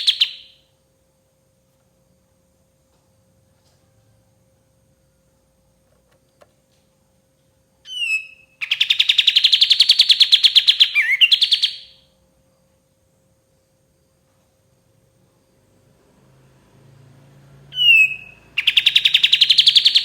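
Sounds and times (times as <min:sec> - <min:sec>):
songbird whistle and trill: 0:00.0 - 0:00.7, 0:07.8 - 0:12.1, 0:17.7 - 0:20.0.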